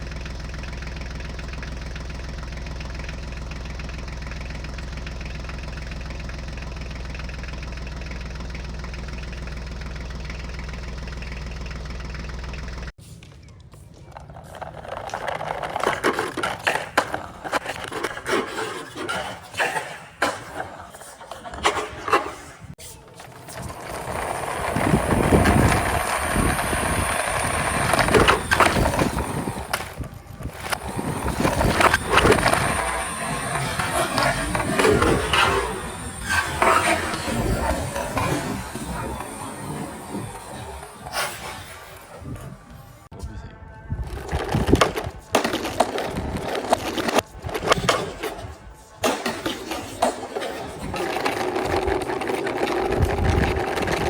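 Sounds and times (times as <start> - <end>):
toy wheels rolling on track: 13.9 - 19.6, 23.0 - 42.9, 44.0 - 54.0.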